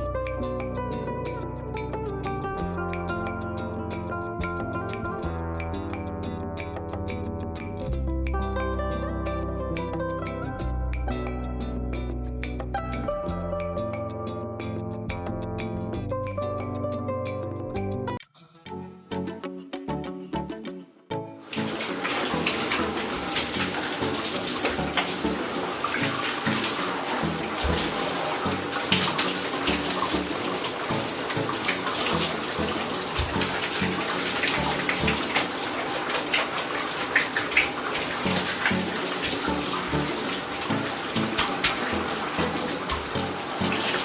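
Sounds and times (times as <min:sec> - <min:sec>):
tap water splashing into tub: 0:21.5 - 0:44.0.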